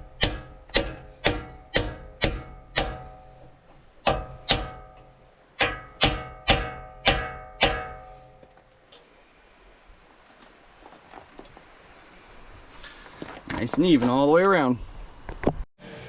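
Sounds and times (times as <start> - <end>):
hammer striking metal seal driver: 0.0 - 3.3, 4.0 - 8.2.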